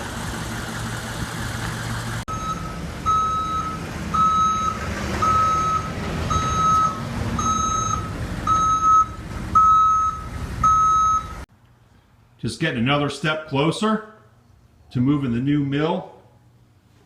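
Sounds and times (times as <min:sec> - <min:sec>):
truck engine running: 0:00.0 - 0:11.4
reversing alarm beeping: 0:02.3 - 0:11.4.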